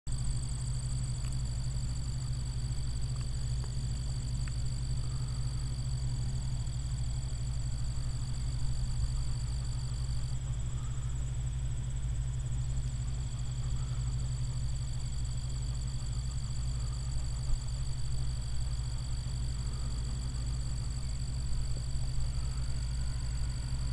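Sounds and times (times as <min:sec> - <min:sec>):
combine harvester low drone: 0:00.1 - 0:23.9.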